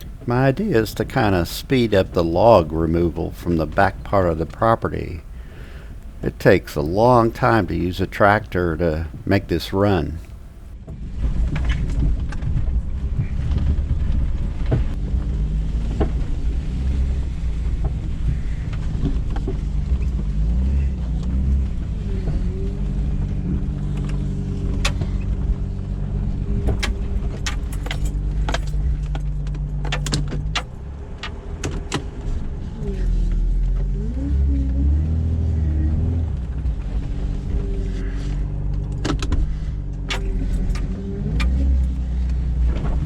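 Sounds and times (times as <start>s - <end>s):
off-road vehicle engine revving: 0.0s - 10.8s, 12.8s - 43.0s
sharp knocks and rattles: 26.6s - 32.0s.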